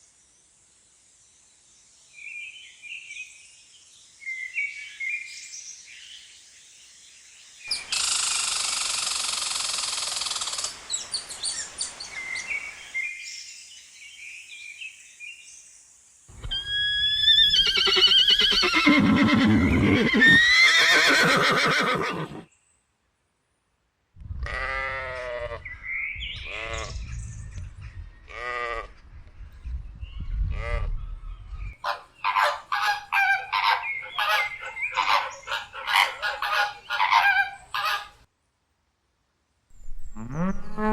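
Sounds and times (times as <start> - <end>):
farm animals calling: 16.3 - 22.4, 31.8 - 38.3, 40.2 - 40.9.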